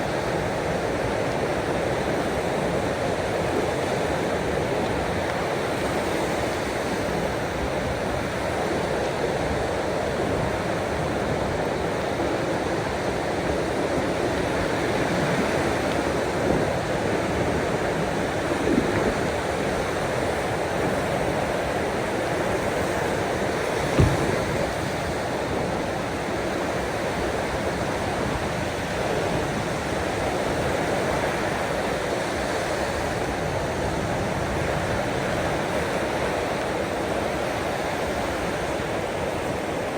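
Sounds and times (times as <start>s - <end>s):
sea waves washing: 11.4s - 28.6s
low thump: 23.8s - 25.0s.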